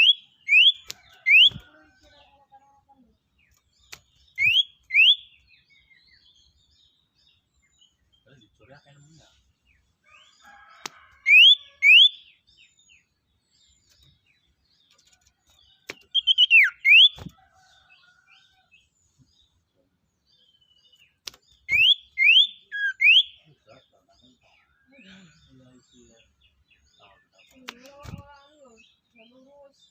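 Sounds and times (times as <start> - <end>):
sharp clicks: 3.5 - 4.6, 21.2 - 21.9
songbird whistling: 4.4 - 5.3, 16.1 - 17.3, 21.7 - 23.4.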